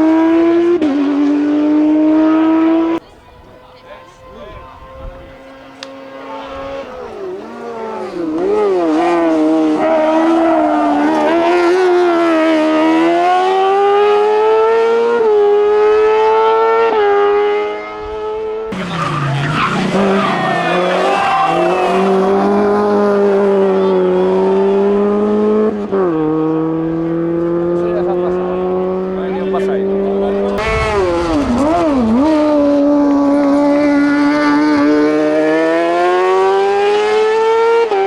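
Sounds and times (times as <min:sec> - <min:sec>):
race car engine revving: 0:00.0 - 0:38.0.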